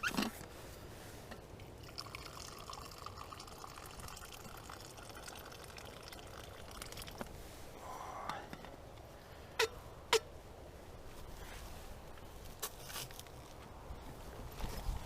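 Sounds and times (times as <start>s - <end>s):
tea pouring into a cup: 1.7s - 7.2s.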